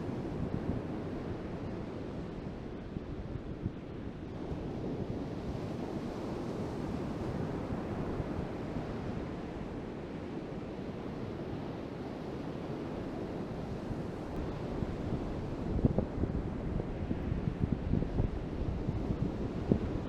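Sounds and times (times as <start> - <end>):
wind buffeting microphone: 12.8 - 20.0.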